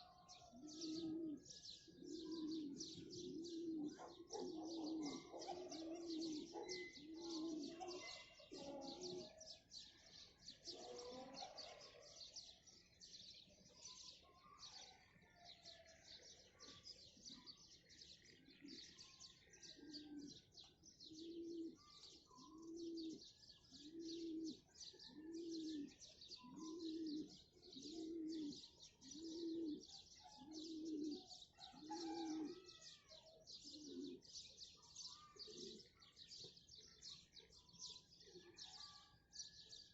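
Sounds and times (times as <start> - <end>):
dove cooing: 0.0 - 9.5, 10.6 - 12.4, 18.2 - 34.5, 35.2 - 36.5
small birds chirping: 0.0 - 39.9.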